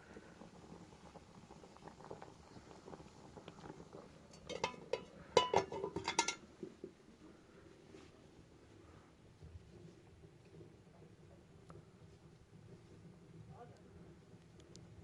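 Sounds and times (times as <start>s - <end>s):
dishes and utensils clinking: 4.4s - 6.4s.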